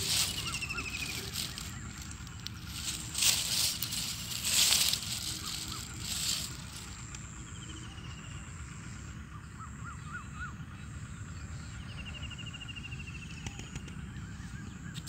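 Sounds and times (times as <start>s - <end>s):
bird trill: 0.0s - 8.6s
birds chirping: 0.0s - 15.0s
low steady rumble: 0.0s - 15.0s.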